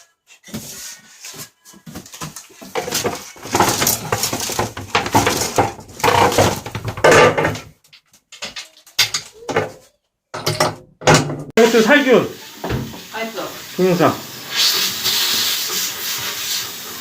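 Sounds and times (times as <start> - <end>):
washing machine parts clattering: 2.4 - 11.5.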